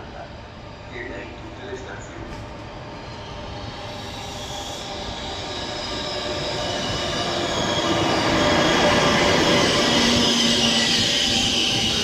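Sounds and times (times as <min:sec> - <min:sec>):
train low rumble: 0:00.0 - 0:07.7.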